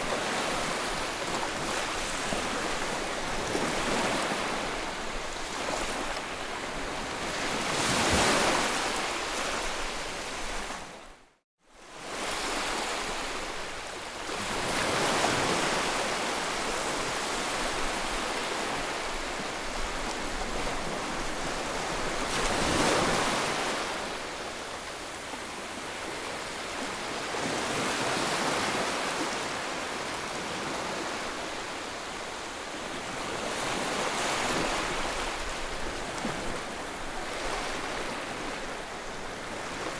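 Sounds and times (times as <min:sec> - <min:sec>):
ocean waves breaking: 0:14.3 - 0:39.9.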